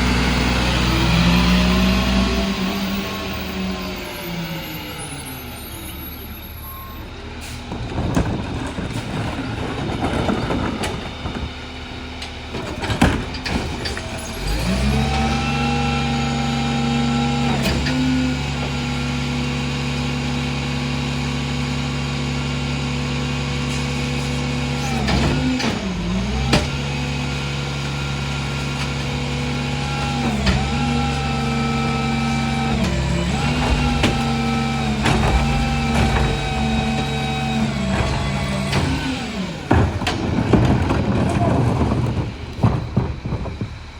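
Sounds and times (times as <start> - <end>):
garbage truck diesel engine: 0.0 - 43.9
knocks and clatter: 7.7 - 11.6, 12.2 - 14.7, 32.6 - 43.9.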